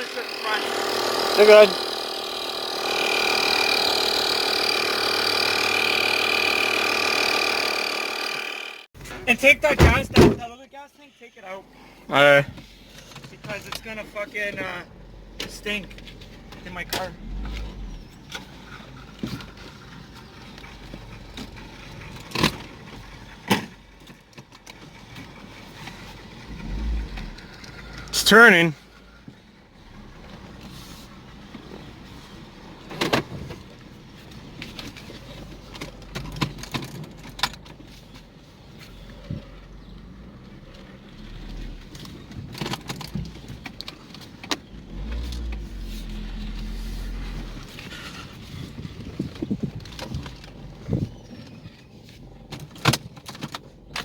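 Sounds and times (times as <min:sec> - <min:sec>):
starter cranking engine: 0:00.0 - 0:08.9, 0:40.7 - 0:51.1.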